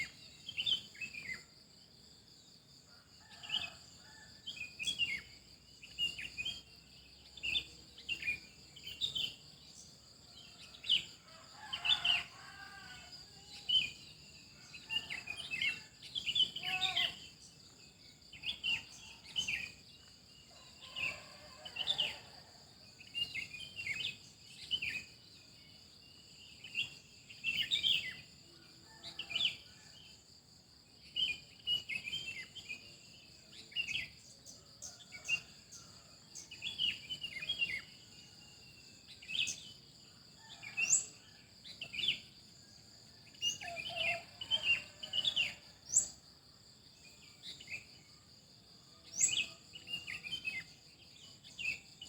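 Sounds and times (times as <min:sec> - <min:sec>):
songbirds chirping: 0:00.0 - 0:52.0
high-pitched insect trill: 0:03.3 - 0:22.2.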